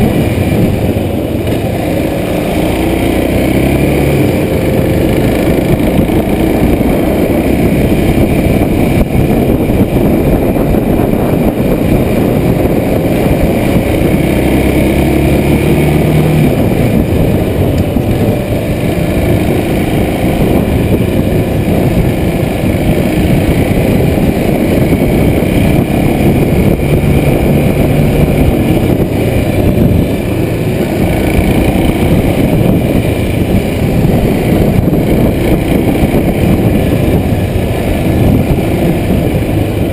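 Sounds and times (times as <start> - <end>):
motorcycle engine running: 0.0 - 39.9
wind rumble: 0.0 - 39.9.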